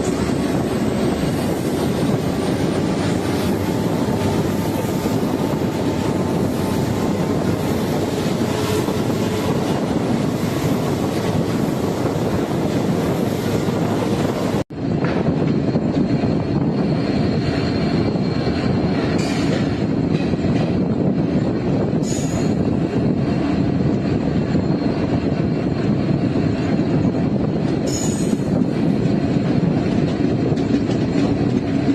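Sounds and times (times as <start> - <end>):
diesel locomotive engine humming: 0.0 - 31.9
train wheel and track noise: 0.0 - 31.9.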